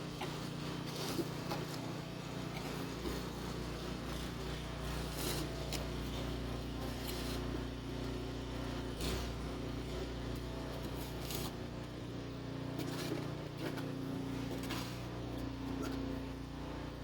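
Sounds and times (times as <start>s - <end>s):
snow shovel scraping snow: 0.0s - 7.7s, 8.9s - 10.0s, 10.8s - 11.7s, 12.8s - 15.2s.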